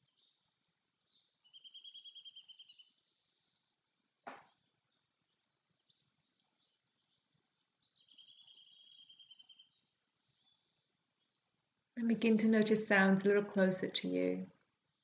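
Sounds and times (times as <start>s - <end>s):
birds chirping: 0.0s - 15.0s
bird trill: 1.5s - 3.0s, 7.5s - 11.0s.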